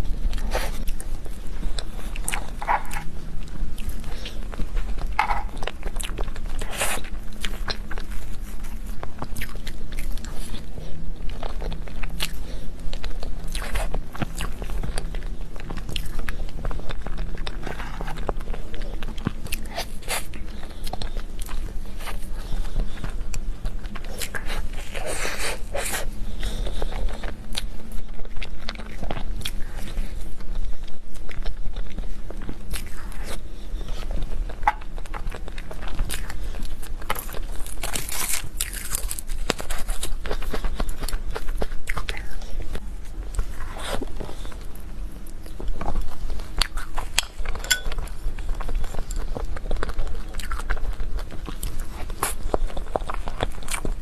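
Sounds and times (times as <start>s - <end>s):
person chewing cake: 0.0s - 54.0s
food crunches: 34.0s - 42.4s, 45.3s - 54.0s.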